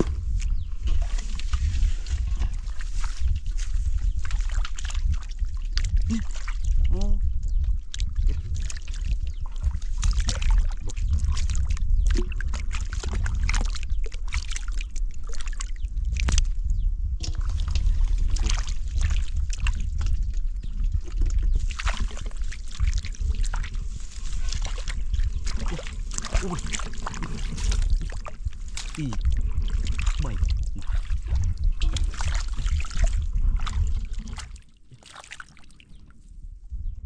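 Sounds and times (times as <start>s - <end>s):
water sloshing and splashing: 0.0s - 16.6s, 17.2s - 36.3s
steady low rumble: 0.0s - 34.9s.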